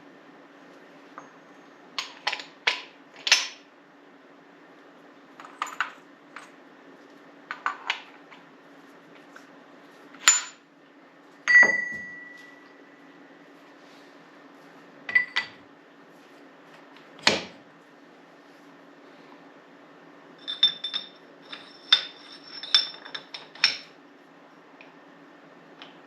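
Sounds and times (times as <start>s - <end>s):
ringing metal strike: 11.5s - 12.7s
metal parts clinking and knocking: 20.4s - 23.9s.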